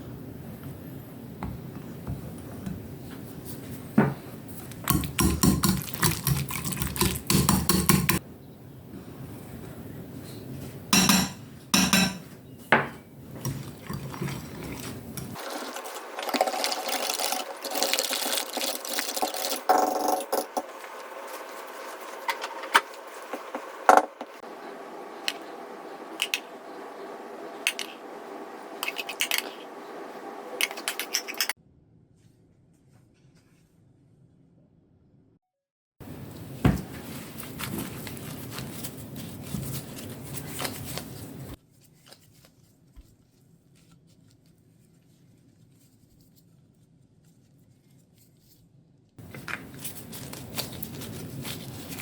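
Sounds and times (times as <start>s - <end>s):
utensils clinking against dishes: 11.0s - 12.4s.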